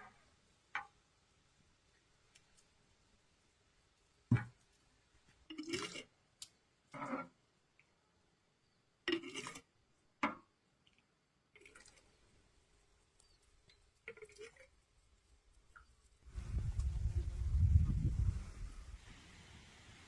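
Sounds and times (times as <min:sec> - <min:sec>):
thump: 0:04.3 - 0:04.6.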